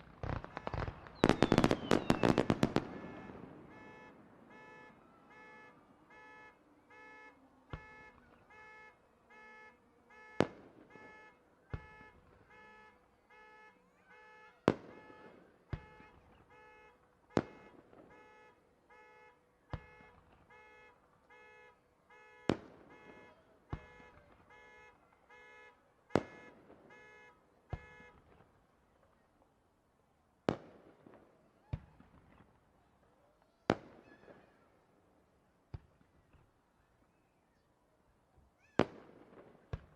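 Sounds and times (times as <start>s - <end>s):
fireworks bangs: 0.0s - 9.4s, 10.2s - 12.9s, 14.6s - 19.0s, 19.7s - 21.5s, 22.1s - 25.4s, 26.1s - 29.1s, 30.5s - 32.6s, 33.7s - 35.0s, 38.6s - 39.9s.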